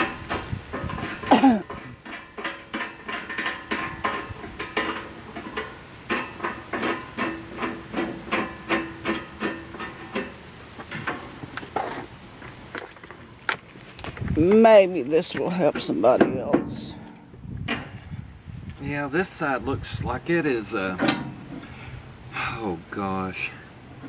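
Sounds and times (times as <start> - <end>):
knocks and clinks on metal: 0.0 - 12.0, 15.7 - 18.9, 21.0 - 21.7.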